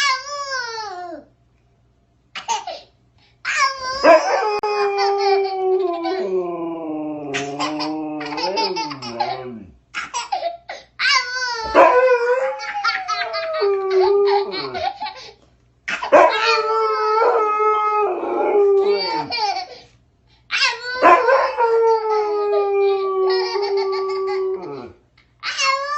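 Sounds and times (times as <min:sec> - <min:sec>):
baby squealing and howling: 0:03.5 - 0:06.3, 0:07.3 - 0:09.7, 0:11.0 - 0:15.0, 0:16.0 - 0:17.4, 0:18.8 - 0:19.8, 0:20.5 - 0:25.9
dog howling: 0:03.9 - 0:09.7, 0:11.6 - 0:14.8, 0:16.1 - 0:19.4, 0:21.0 - 0:25.0.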